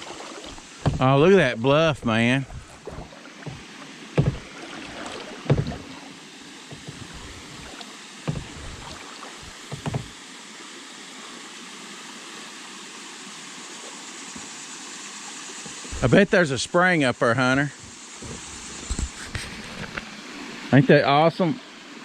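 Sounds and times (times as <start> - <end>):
paddle strokes thumping: 0.0 - 6.1, 6.7 - 10.2, 15.6 - 16.4, 17.5 - 19.3
moving water hiss: 0.0 - 22.0.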